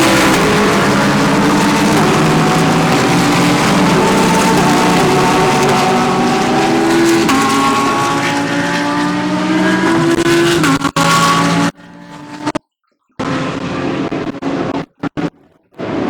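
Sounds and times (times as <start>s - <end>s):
race car engines running hard: 0.0s - 12.6s, 13.2s - 16.0s.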